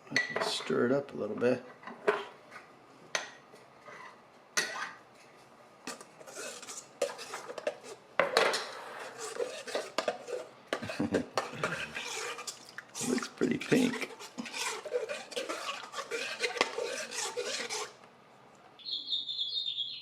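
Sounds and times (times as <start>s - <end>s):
spoon scraping bowl: 5.9s - 8.0s, 8.7s - 18.0s.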